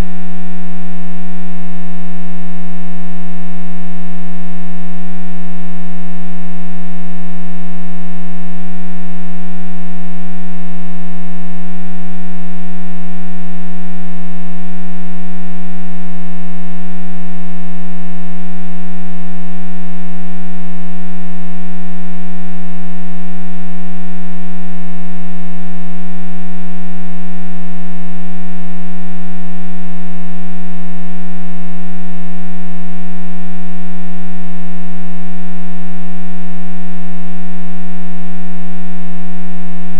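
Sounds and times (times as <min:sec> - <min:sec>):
loud steady hum: 0:00.0 - 0:00.2.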